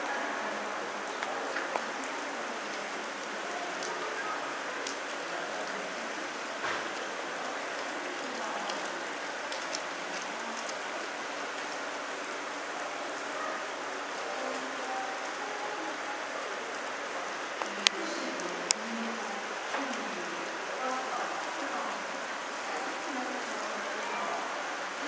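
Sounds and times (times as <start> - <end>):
rain on pavement: 0.0 - 25.0
raindrop taps: 1.0 - 2.8, 6.6 - 7.1, 8.6 - 10.9, 17.6 - 18.9.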